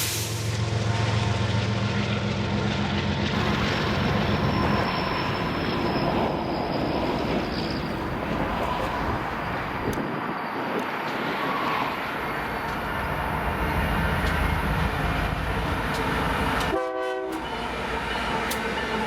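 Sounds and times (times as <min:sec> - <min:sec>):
train wheels rumbling on rail: 0:00.0 - 0:19.0
locomotive horn blast: 0:16.6 - 0:18.6.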